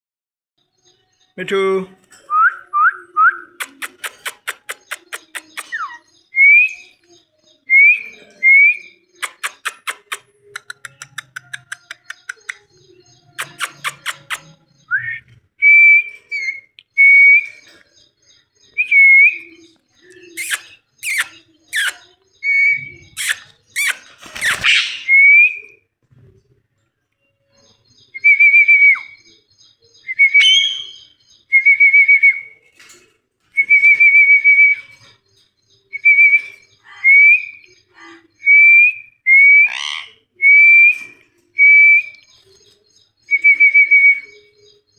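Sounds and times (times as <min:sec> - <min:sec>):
parrot sharp clicks: 0:03.6 - 0:05.8
parrot whistling: 0:20.4 - 0:22.0, 0:23.1 - 0:25.6, 0:30.2 - 0:31.0.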